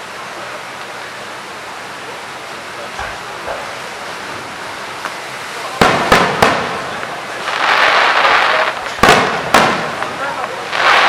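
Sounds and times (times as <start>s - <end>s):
outdoor background hiss: 0.0s - 11.0s
muffled firework thumps: 5.8s - 7.2s.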